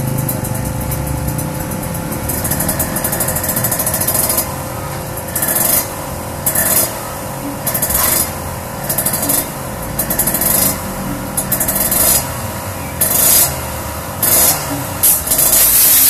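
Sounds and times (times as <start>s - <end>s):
two-stroke motorcycle engine: 0.0s - 16.0s
sharp hiss: 14.3s - 16.0s.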